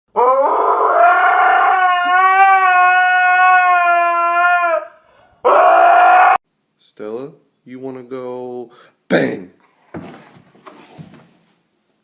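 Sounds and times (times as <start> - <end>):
dog howling: 0.1 - 6.4.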